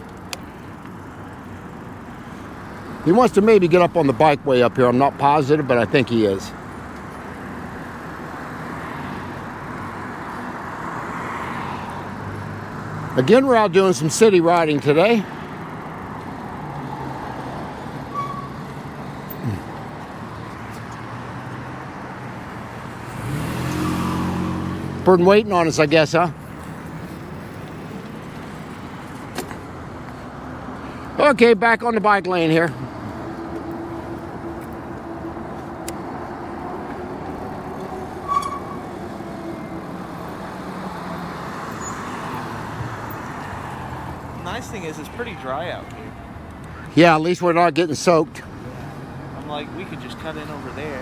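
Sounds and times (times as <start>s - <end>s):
road traffic noise: 0.0s - 51.0s
vehicle engines humming: 0.0s - 51.0s
short high squeak: 18.1s - 18.7s, 37.8s - 39.0s.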